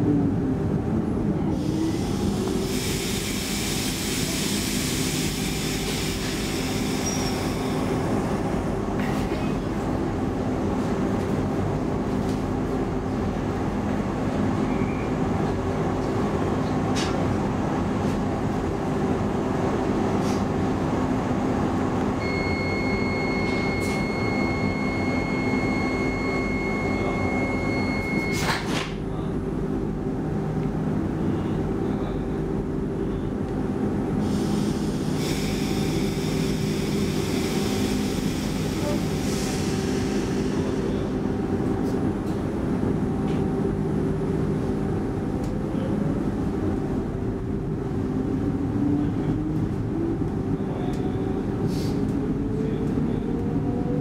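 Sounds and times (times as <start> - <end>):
high electronic beep: 22.2 - 28.5.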